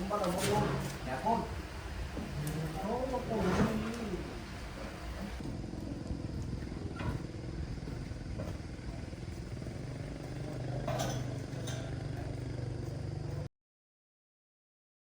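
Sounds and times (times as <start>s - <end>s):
motorcycle engine idling: 6.6s - 13.5s.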